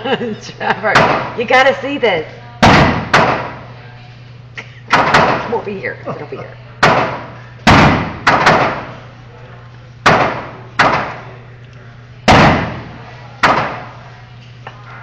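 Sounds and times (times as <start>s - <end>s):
gunshots with echo: 6.8s - 8.9s, 12.3s - 13.9s.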